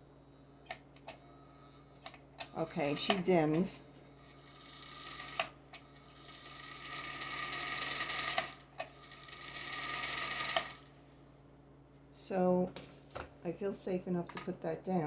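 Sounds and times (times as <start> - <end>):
sewing machine motor running: 4.4 - 5.5, 6.2 - 10.9.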